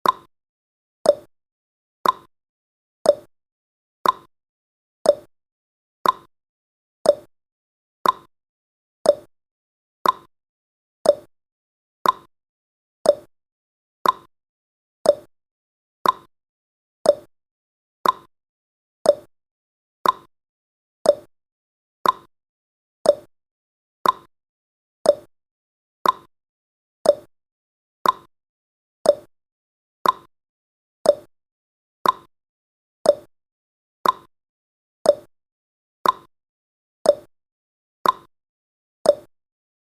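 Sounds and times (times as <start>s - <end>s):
clock ticking: 2.0s - 2.3s, 4.0s - 4.3s, 6.0s - 6.3s, 8.0s - 8.3s, 10.0s - 10.3s, 12.0s - 12.3s, 14.0s - 14.3s, 15.1s - 15.3s, 16.0s - 16.3s, 18.0s - 18.3s, 20.0s - 20.3s, 22.0s - 22.3s, 24.0s - 24.3s, 25.1s - 25.3s, 26.0s - 26.3s, 27.1s - 27.3s, 28.0s - 28.3s, 29.1s - 29.3s, 30.0s - 30.3s, 32.0s - 32.3s, 33.1s - 33.3s, 34.0s - 34.3s, 36.0s - 36.3s, 38.0s - 38.3s.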